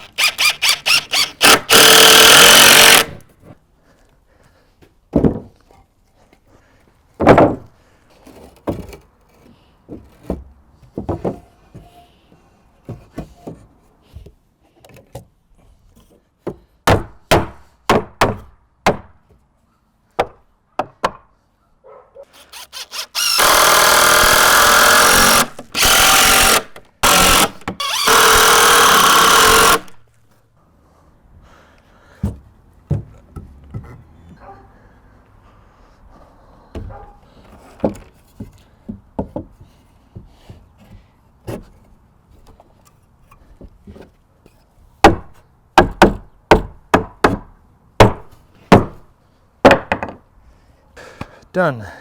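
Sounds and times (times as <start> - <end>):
cordless drill drilling into wood: 0.0 - 3.2, 22.3 - 30.0
knocks and clatter of lumber: 5.1 - 5.6, 7.2 - 7.7, 9.9 - 11.9, 36.8 - 42.6.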